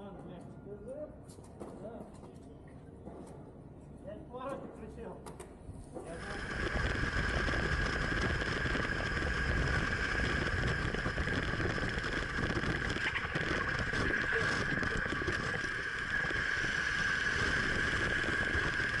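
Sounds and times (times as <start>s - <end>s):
steady high whine: 5.9s - 19.0s
wind rushing over microphone: 6.1s - 19.0s.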